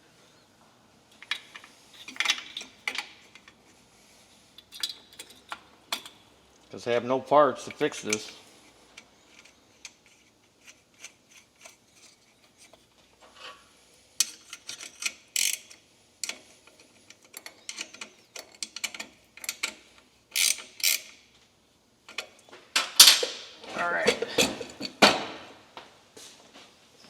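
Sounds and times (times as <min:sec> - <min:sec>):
metal parts clinking: 0:07.8 - 0:08.4, 0:14.2 - 0:21.2, 0:22.1 - 0:25.0.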